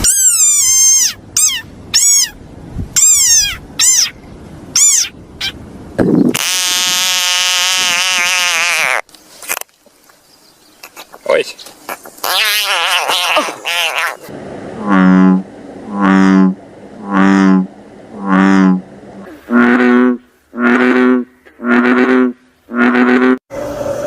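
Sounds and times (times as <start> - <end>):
wavering warbling call: 0.0 - 2.4, 3.0 - 4.2, 4.8 - 5.6, 11.9 - 23.4
frogs calling: 10.3 - 18.8.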